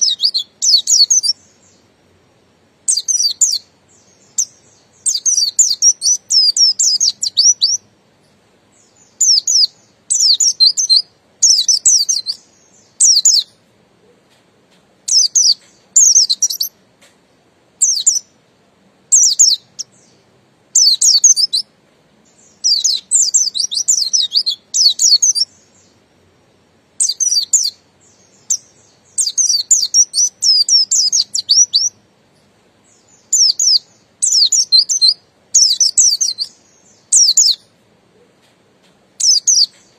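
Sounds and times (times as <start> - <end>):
bird twittering: 0.0 - 1.9, 2.9 - 7.8, 8.7 - 13.6, 15.1 - 16.8, 17.8 - 18.4, 19.1 - 26.0, 27.0 - 32.0, 32.8 - 38.3, 39.2 - 39.9.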